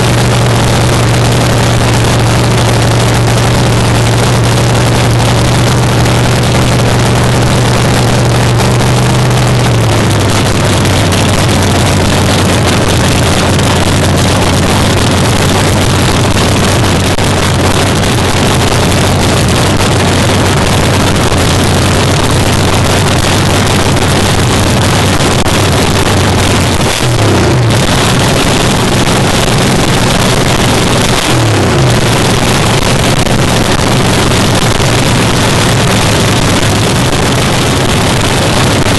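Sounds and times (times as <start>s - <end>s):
drag car engine idling: 0.0s - 38.9s.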